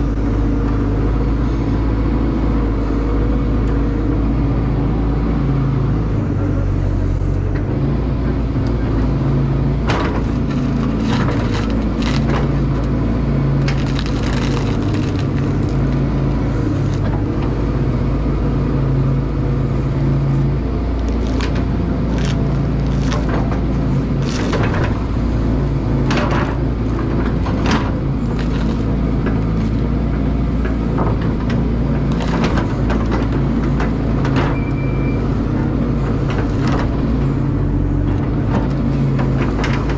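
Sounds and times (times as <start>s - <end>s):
excavator diesel engine running: 0.0s - 39.9s
wood cracking and knocking: 9.8s - 13.0s, 13.6s - 17.6s, 21.0s - 29.9s, 30.6s - 34.6s.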